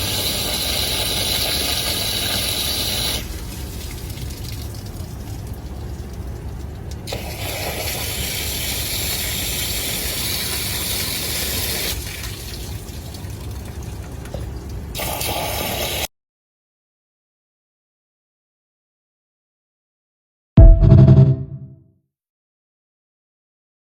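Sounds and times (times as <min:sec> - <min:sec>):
water running from a hose: 0:00.0 - 0:16.1.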